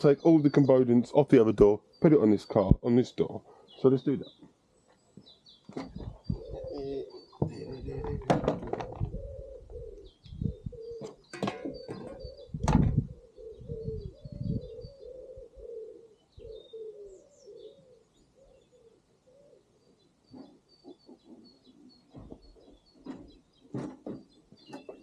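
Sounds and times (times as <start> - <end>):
small birds chirping: 0.0 - 25.0
sharp knocks and clunks: 5.7 - 6.4, 7.4 - 9.1, 11.0 - 13.1, 22.1 - 25.0
pigeon cooing: 5.8 - 23.8.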